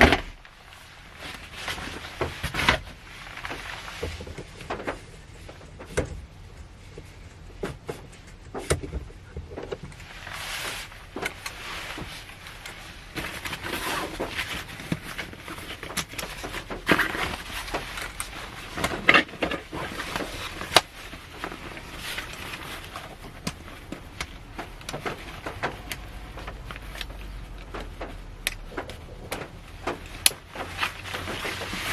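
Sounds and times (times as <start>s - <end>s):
raindrops tapping on car roof: 15.7s - 31.9s.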